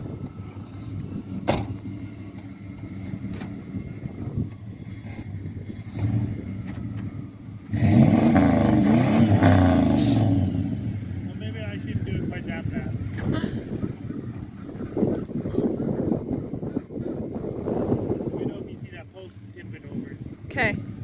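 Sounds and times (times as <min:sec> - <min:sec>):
pickup truck engine running: 0:00.0 - 0:21.0.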